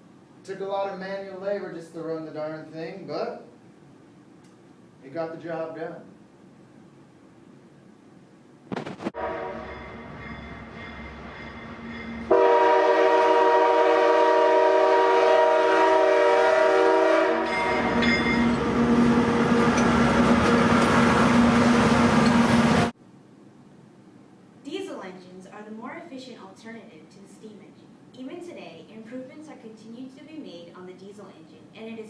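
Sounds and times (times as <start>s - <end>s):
train rumble and rail noise: 9.0s - 23.0s
train whistle blast: 9.2s - 10.1s, 12.2s - 22.9s.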